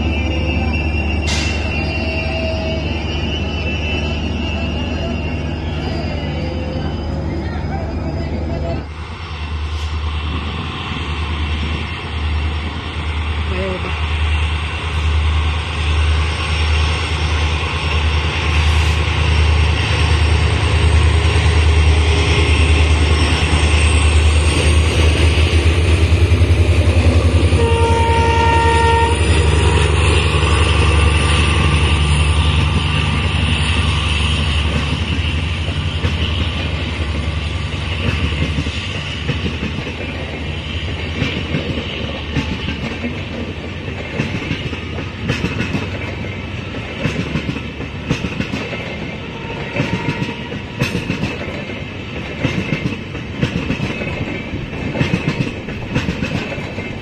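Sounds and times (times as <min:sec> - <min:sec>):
train horn blast: 0:27.5 - 0:29.4, 0:49.2 - 0:50.8
train wheels clattering over rail joints: 0:30.7 - 0:57.0.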